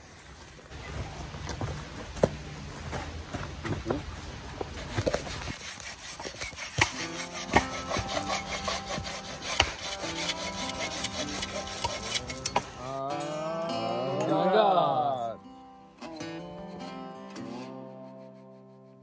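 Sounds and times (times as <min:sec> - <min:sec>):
rapid scraping strokes: 0:04.8 - 0:13.0.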